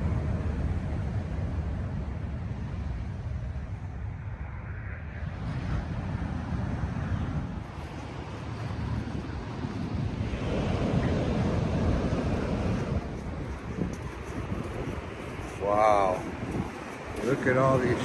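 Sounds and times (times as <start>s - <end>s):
wind buffeting microphone: 0.0s - 18.0s
sea surf: 5.4s - 18.0s.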